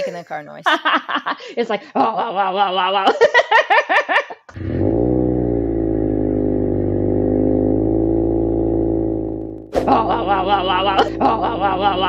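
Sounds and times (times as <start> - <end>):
car engine running: 4.8 - 9.8.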